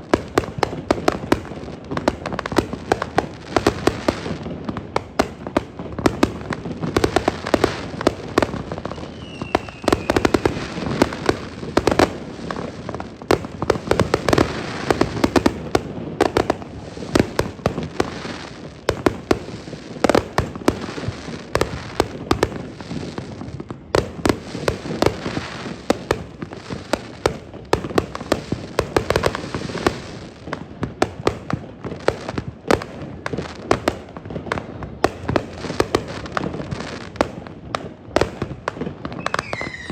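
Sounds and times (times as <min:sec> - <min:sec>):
fireworks bursting and crackling: 0:00.0 - 0:39.9
falling firework whistle: 0:08.7 - 0:11.1, 0:39.2 - 0:39.9.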